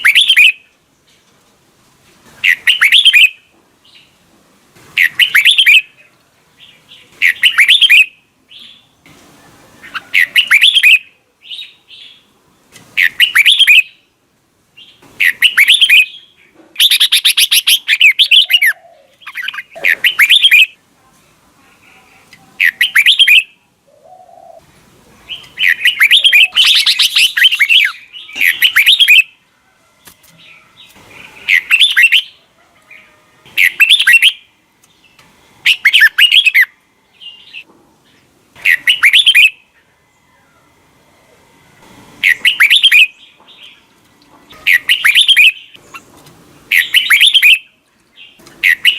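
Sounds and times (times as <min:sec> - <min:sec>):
bird singing chirpy phrases: 0:00.0 - 0:00.7, 0:02.4 - 0:04.2, 0:05.0 - 0:09.0, 0:09.8 - 0:12.4, 0:13.0 - 0:14.1, 0:14.8 - 0:20.8, 0:21.8 - 0:24.6, 0:25.2 - 0:29.4, 0:30.4 - 0:32.4, 0:33.5 - 0:39.8, 0:42.2 - 0:43.9, 0:44.5 - 0:46.1, 0:46.7 - 0:48.9.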